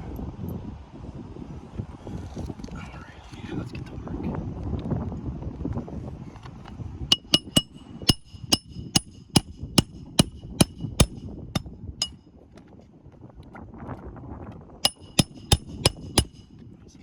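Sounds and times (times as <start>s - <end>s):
hammer driving nails into shingles: 7.1s - 12.2s, 14.8s - 16.5s.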